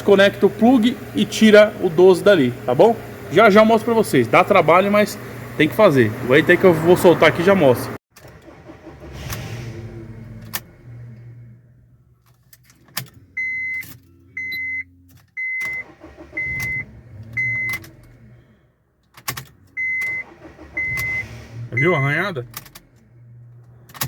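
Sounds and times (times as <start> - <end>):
car warning chime beeping: 13.3 - 18.0, 19.7 - 22.3.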